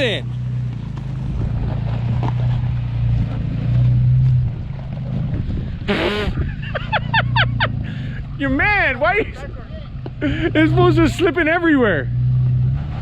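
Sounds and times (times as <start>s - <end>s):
truck engine humming: 0.0s - 13.0s
wind noise on microphone: 4.3s - 7.0s.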